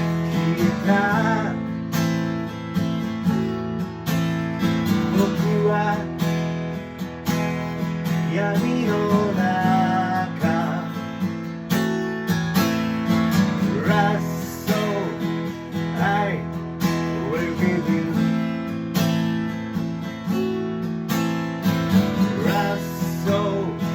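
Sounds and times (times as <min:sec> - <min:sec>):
acoustic guitar strumming: 0:00.0 - 0:23.9.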